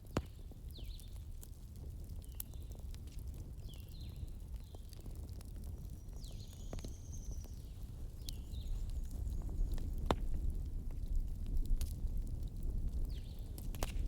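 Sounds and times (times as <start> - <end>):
low fire rumble: 0.0 - 14.0
wood fire crackling and popping: 0.0 - 14.0.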